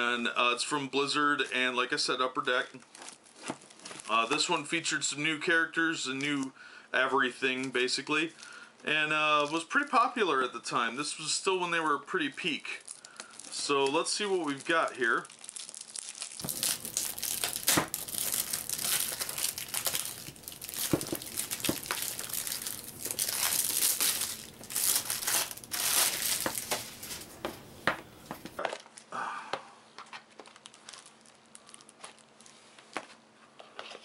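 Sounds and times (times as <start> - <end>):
shrink-wrap crinkling and tearing: 2.8 - 4.5, 12.6 - 29.0, 30.1 - 32.6.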